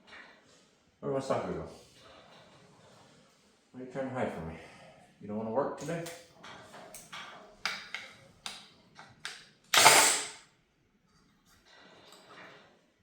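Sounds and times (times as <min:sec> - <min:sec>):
hand ratchet clicking: 0:09.8 - 0:10.4
loud noisy burst: 0:09.8 - 0:10.4.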